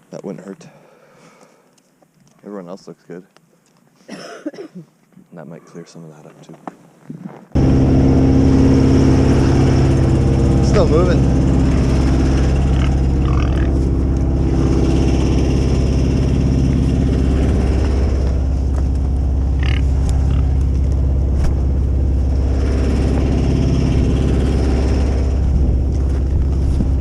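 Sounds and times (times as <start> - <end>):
engine humming steadily: 7.6 - 27.0.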